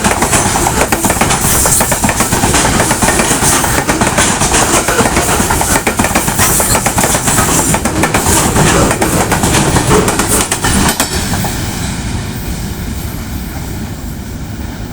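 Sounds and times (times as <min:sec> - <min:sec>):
train wheels clattering over rail joints: 0:00.0 - 0:11.6.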